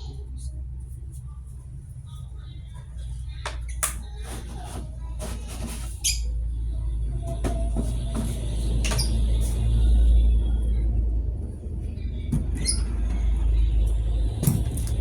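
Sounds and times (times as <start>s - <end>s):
low rumble: 6.4s - 15.0s.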